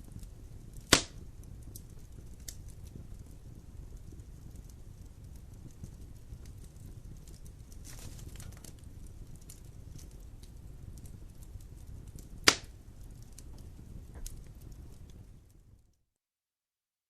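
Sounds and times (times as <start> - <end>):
fire crackling: 0.0 - 16.0
low rumble of flames: 0.0 - 16.0
loud sharp pop: 0.9 - 1.2, 12.4 - 12.7.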